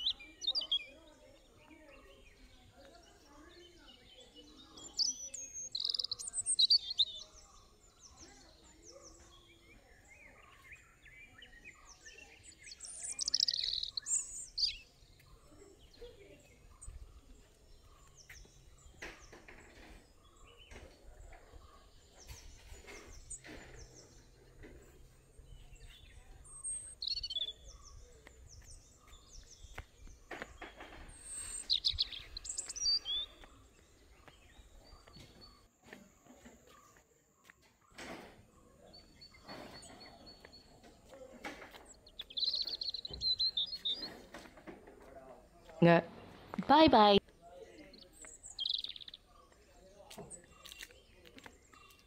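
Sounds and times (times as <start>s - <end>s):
birds chirping: 0.0s - 52.0s
bird trill: 4.3s - 7.4s, 9.1s - 15.3s, 30.6s - 33.5s, 47.8s - 49.4s.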